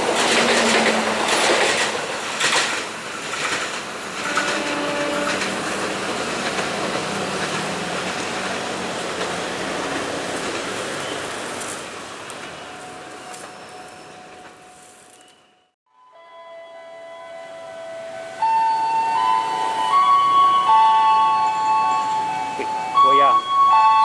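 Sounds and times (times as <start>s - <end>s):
train wheels on rails: 0.0s - 15.7s.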